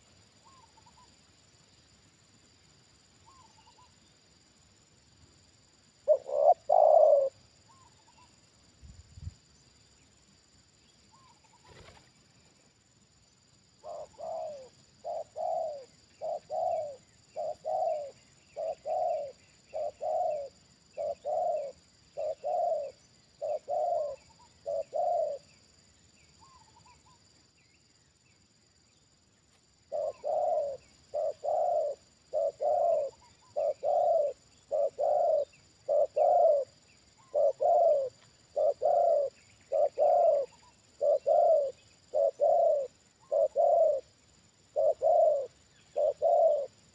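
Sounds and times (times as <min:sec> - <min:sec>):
dove cooing: 0:06.0 - 0:08.3, 0:13.8 - 0:25.5, 0:29.9 - 0:44.1, 0:44.7 - 0:46.8.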